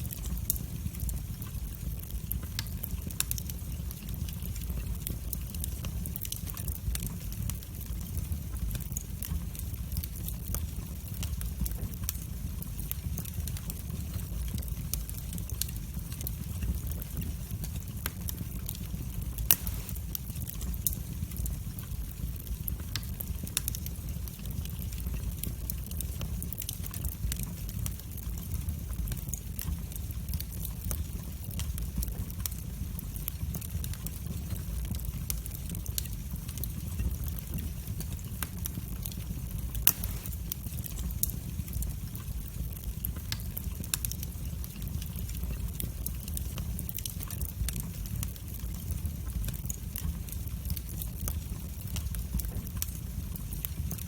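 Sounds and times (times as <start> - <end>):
loud fire pops: 0.0 - 54.0
wood fire crackling: 0.0 - 54.0.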